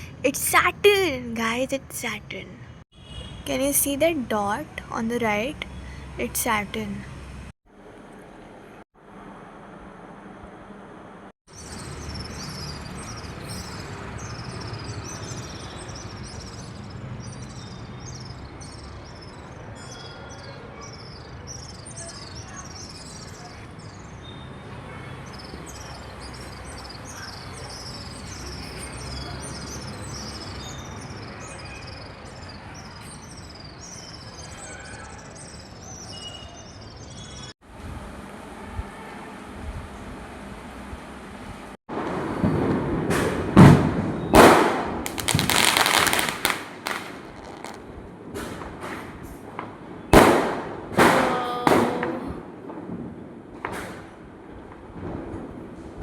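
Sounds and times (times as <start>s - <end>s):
birds chirping: 0.0s - 7.1s, 11.6s - 37.5s, 45.2s - 47.8s.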